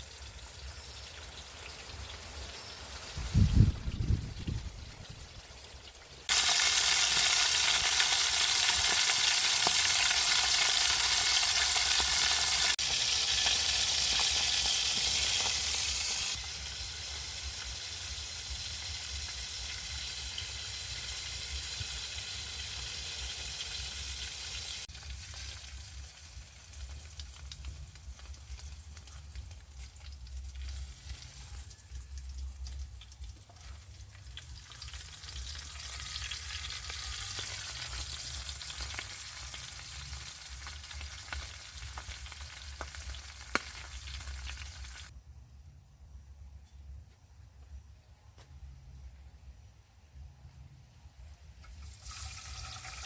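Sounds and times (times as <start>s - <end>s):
food sizzling in hot oil: 0.0s - 45.1s, 51.6s - 53.0s.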